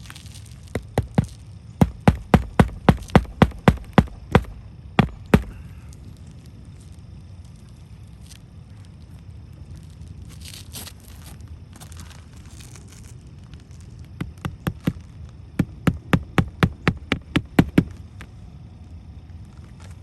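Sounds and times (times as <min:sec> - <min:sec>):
hammer driving nails into shingles: 0:01.0 - 0:05.6.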